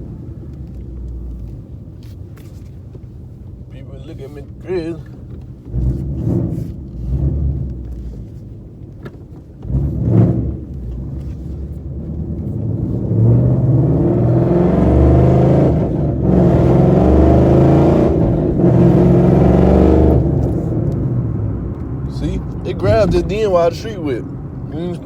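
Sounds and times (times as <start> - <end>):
car engine revving and accelerating: 4.6 - 8.6, 9.4 - 25.0
person speaking: 22.0 - 25.0.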